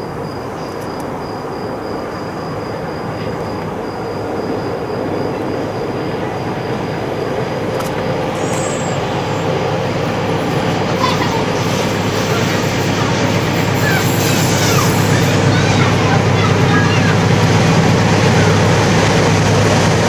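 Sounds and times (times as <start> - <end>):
approaching train rumble: 0.0 - 20.0.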